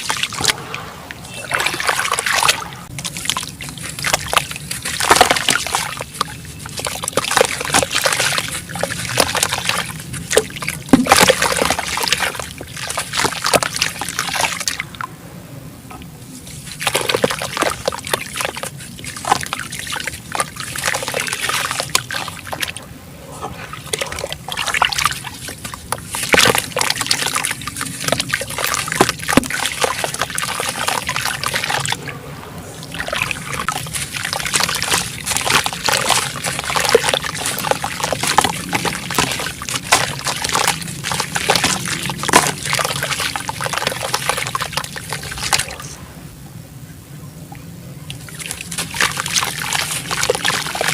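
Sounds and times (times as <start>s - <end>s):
water splashes and trickles: 0.0s - 46.3s, 47.3s - 50.9s
cement chunks fizzing in water: 23.9s - 31.9s, 32.9s - 45.8s, 48.1s - 50.9s.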